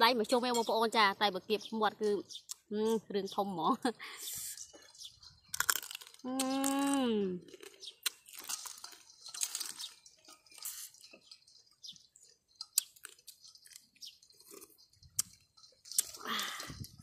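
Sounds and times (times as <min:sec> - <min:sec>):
chewing and crunching: 0:04.5 - 0:17.0
sharp crackles and clicks: 0:05.5 - 0:11.4, 0:12.0 - 0:16.7.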